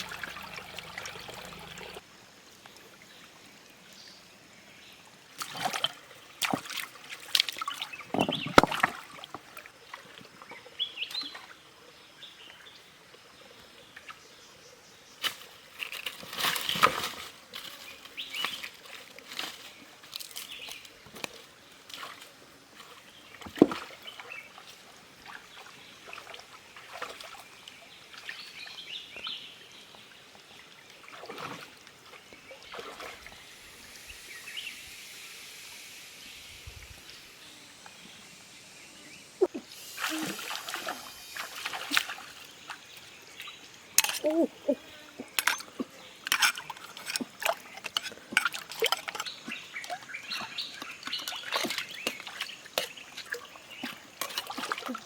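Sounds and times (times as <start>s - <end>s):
water splashing and sloshing: 0.0s - 3.3s, 5.3s - 11.6s, 15.2s - 29.2s, 29.8s - 34.0s, 39.4s - 55.0s.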